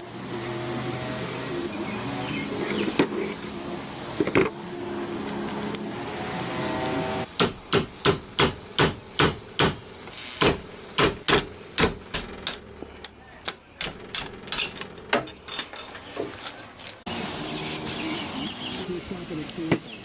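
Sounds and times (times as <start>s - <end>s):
hammer tapping: 7.4s - 15.3s.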